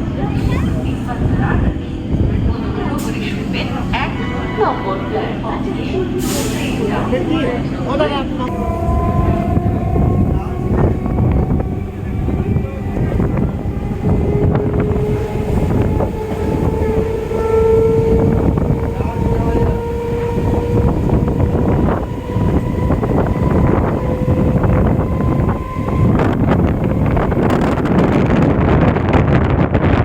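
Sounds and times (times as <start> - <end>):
rushing wind noise: 0.0 - 4.4, 8.5 - 30.0
train wheels rumbling on track: 0.0 - 30.0
electric motor whine: 8.5 - 27.5.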